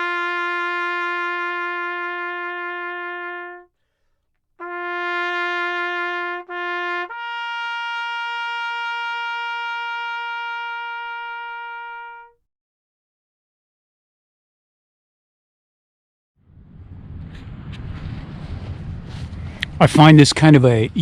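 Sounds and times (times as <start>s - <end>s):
brass horn playing long notes: 0.0s - 3.7s, 4.6s - 12.4s.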